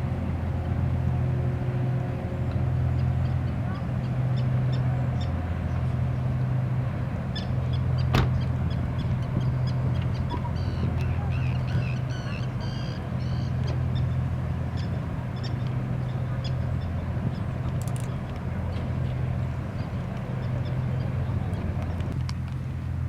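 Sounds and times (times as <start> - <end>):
low engine drone: 0.0 - 23.0
bird calls: 7.3 - 17.6.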